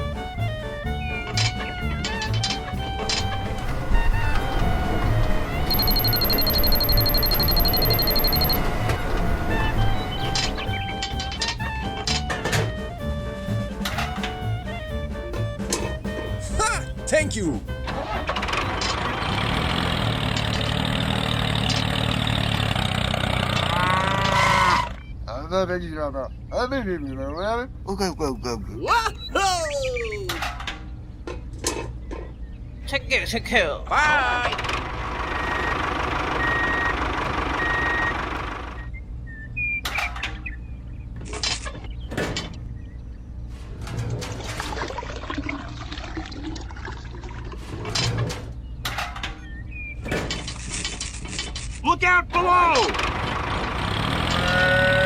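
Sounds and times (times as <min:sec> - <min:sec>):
mechanical running noise: 0:04.9 - 0:10.6
vehicle reversing alarm beeping: 0:05.5 - 0:11.0, 0:35.3 - 0:39.8.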